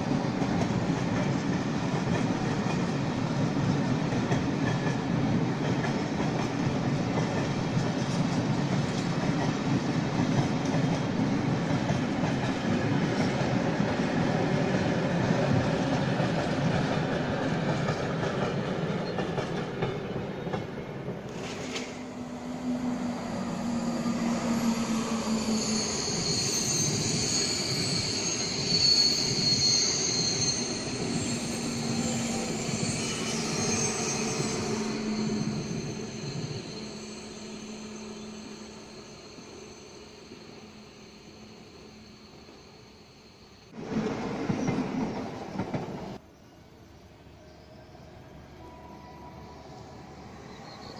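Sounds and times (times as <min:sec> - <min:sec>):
train wheels rumbling on rail: 0:00.0 - 0:41.4, 0:43.7 - 0:46.2
wheel squeals: 0:22.7 - 0:43.7.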